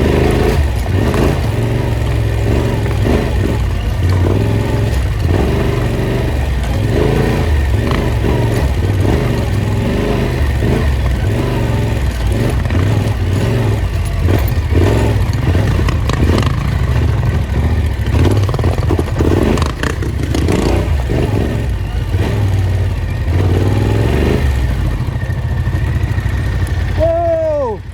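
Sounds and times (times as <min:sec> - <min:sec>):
off-road vehicle engine revving: 0:00.0 - 0:27.9
vehicle clatter: 0:00.0 - 0:27.9.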